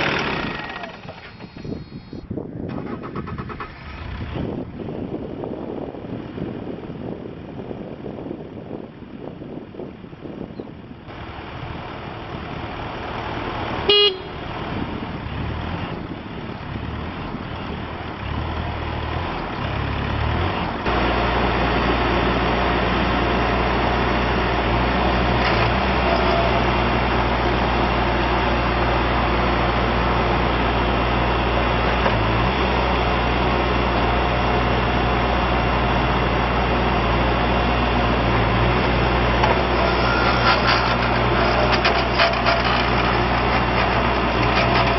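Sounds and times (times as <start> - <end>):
diesel engine running: 0.0 - 44.9
machine horn blast: 13.8 - 14.5.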